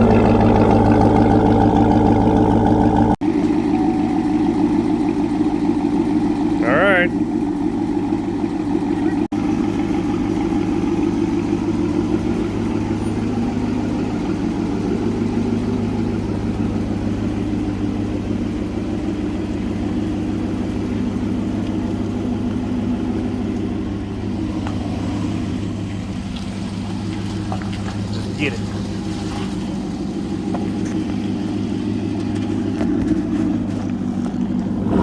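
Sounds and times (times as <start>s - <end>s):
engine exhaust droning: 0.0s - 35.0s.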